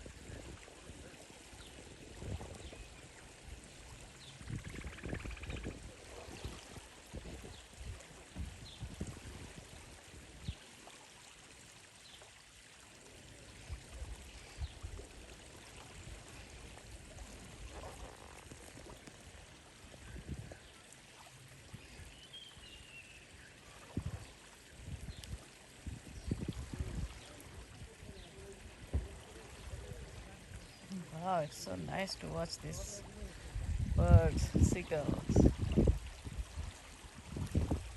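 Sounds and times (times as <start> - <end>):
water rushing: 0.0 - 37.9
wind thumps on microphone: 25.9 - 27.1, 33.5 - 37.9.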